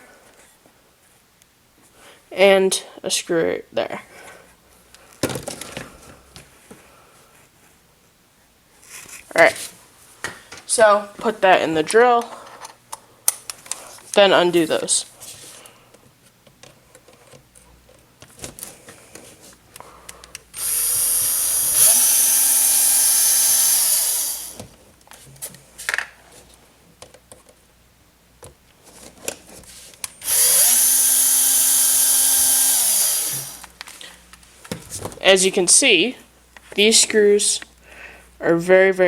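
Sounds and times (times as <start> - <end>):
cordless drill motor whine: 20.6 - 24.6, 30.2 - 33.7.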